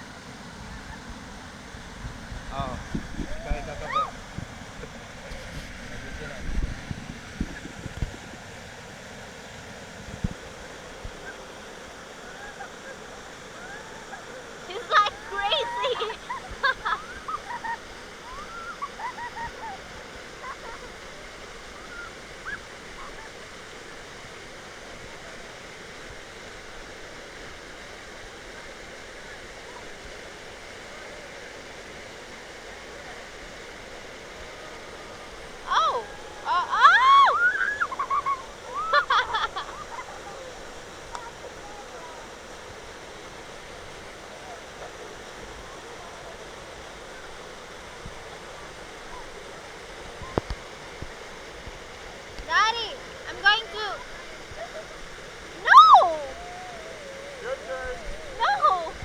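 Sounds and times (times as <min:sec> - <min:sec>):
waterfall rushing: 0:00.0 - 0:59.0
short call: 0:55.6 - 0:58.9.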